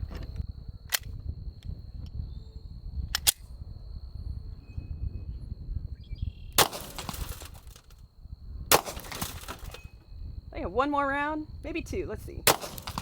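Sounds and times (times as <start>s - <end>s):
pistol shots with echo: 6.6s - 7.2s, 12.5s - 13.0s.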